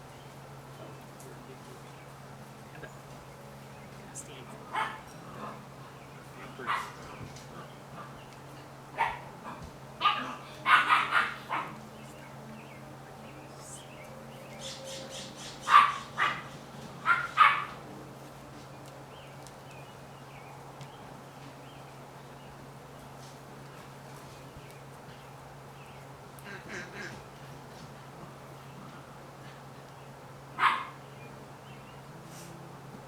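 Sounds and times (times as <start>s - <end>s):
puppies yapping: 6.6s - 8.2s, 9.0s - 11.8s, 14.7s - 17.8s, 30.6s - 31.0s.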